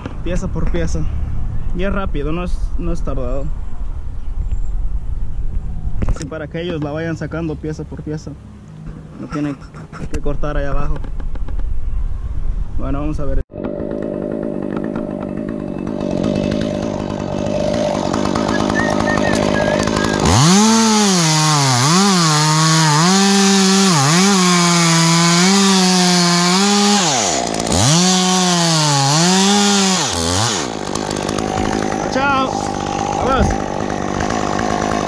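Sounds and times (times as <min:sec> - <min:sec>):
chainsaw cutting wood: 0:13.5 - 0:35.0.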